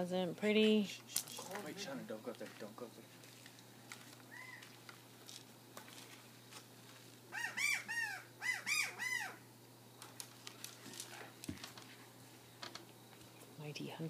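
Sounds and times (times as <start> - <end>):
crow cawing: 4.3 - 4.7, 7.3 - 9.4.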